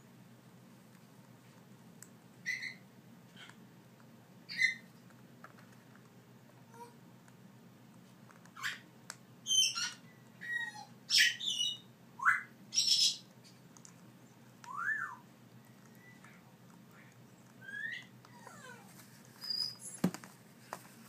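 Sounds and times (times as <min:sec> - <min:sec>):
parrots squawking and calling: 0:02.4 - 0:02.8, 0:04.5 - 0:04.9, 0:08.6 - 0:13.2, 0:17.0 - 0:18.8.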